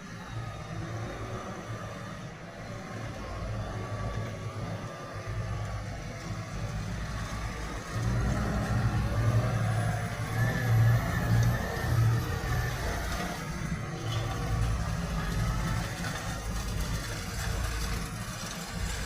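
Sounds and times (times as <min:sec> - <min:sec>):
diesel tractor engine: 0:00.0 - 0:19.0.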